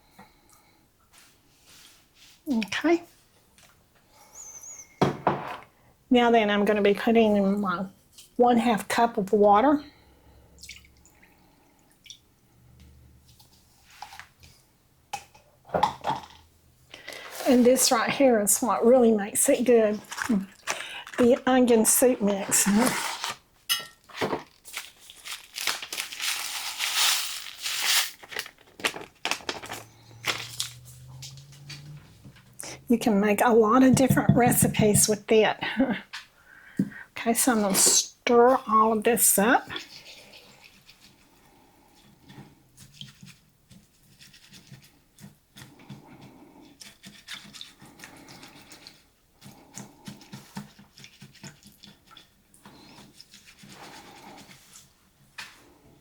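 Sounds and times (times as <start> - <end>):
utensil stirring thick mixture in bowl: 17.1 - 23.1, 30.5 - 35.2, 38.6 - 55.0
foil packet crinkling: 19.9 - 23.5, 24.1 - 30.8.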